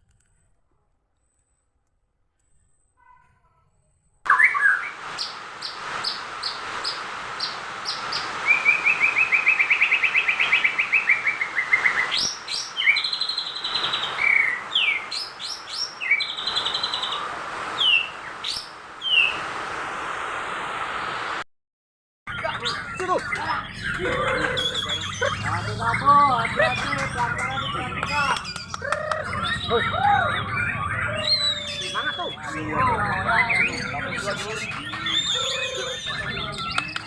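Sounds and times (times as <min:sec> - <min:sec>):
songbird singing trills and whistles: 0:04.3 - 0:17.2, 0:17.8 - 0:19.4, 0:22.3 - 0:37.0.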